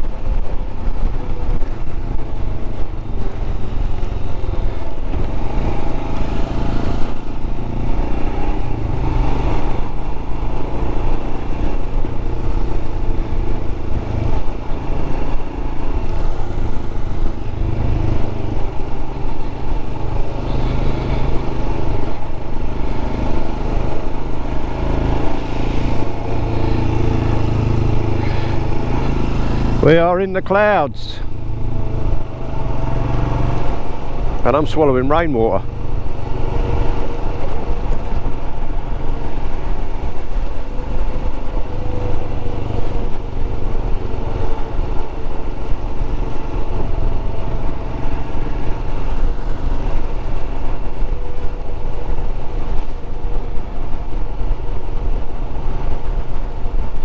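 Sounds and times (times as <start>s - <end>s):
wind noise on microphone: 0.0s - 29.8s
motorcycle engine cruising: 0.0s - 57.0s.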